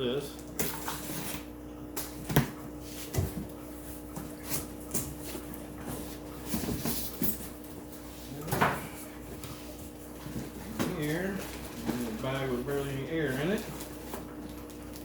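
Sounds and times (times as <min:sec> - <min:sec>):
steady low hum: 0:00.0 - 0:15.0
plastic bags rustling: 0:10.2 - 0:15.0.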